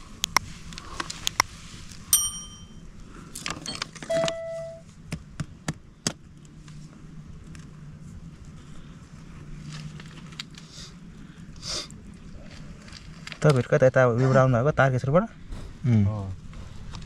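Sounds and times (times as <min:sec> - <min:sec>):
ringing metallic notes: 0:02.1 - 0:02.8, 0:03.7 - 0:04.8.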